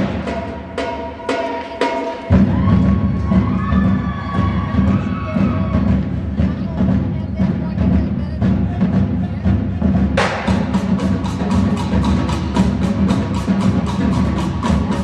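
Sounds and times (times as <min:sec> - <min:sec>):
marching band percussion clicks: 0:10.2 - 0:15.0.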